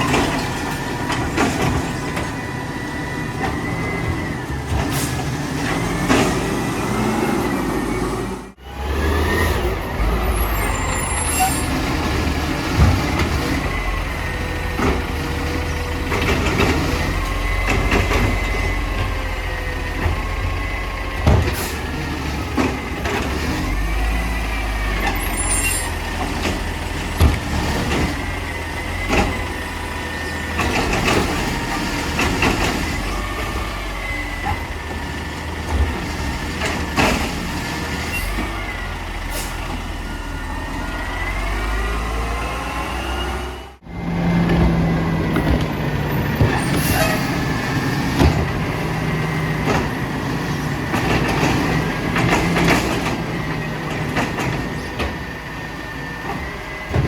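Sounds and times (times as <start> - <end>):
garbage truck engine rumble: 0.0 - 57.0
knocks and clanks: 25.0 - 29.8, 44.4 - 55.3.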